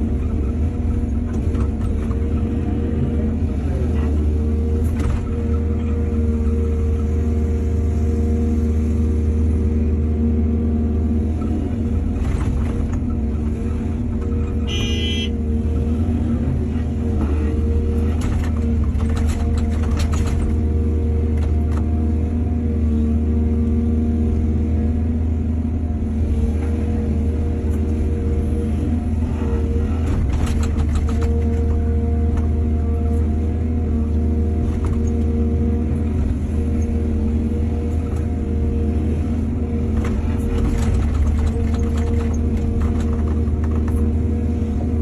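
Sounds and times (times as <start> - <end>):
diesel engine running: 0.0 - 45.0
excavator clattering: 17.1 - 21.9, 29.8 - 32.7, 39.7 - 45.0.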